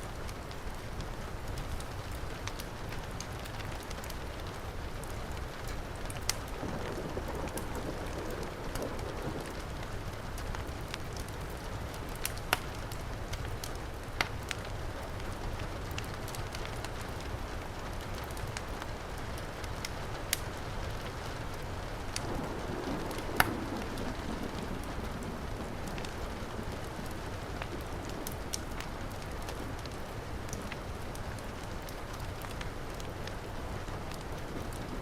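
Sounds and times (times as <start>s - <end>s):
wood fire crackling and popping: 0.1s - 35.0s
heavy rain hissing: 4.7s - 12.0s, 18.9s - 35.0s.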